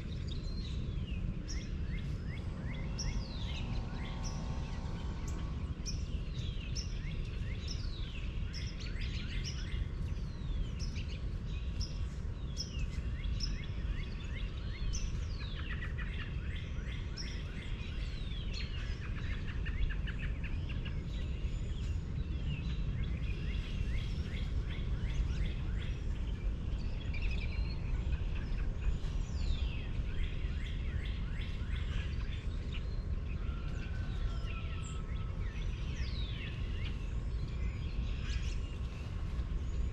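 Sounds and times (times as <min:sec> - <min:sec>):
birds singing and chirping: 0:00.0 - 0:39.9
steady low rumble: 0:00.0 - 0:39.9.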